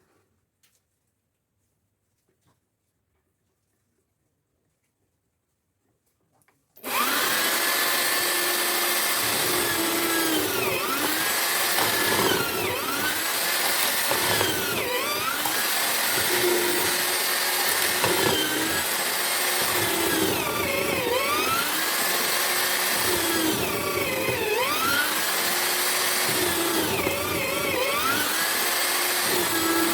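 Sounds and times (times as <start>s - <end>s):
mortising machine running: 6.8s - 29.9s.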